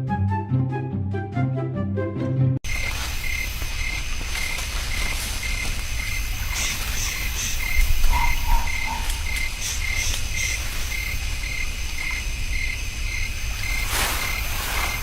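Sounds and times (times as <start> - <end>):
rhythmic animal chirping: 2.7 - 15.0
higher animal calls: 3.4 - 15.0.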